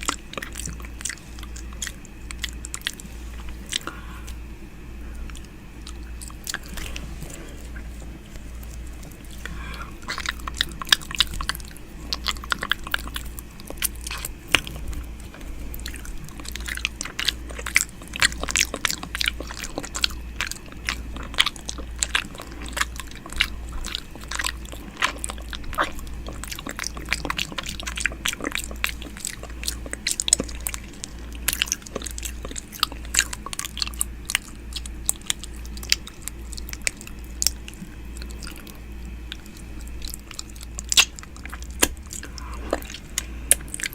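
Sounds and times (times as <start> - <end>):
faint low hum: 0.0 - 43.9
wet mouth clicks and smacks: 39.3 - 43.9.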